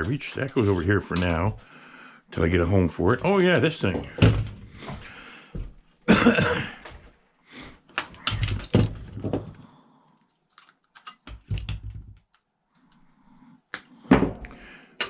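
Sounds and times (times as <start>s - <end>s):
metal parts clanking and rattling: 8.0s - 9.5s.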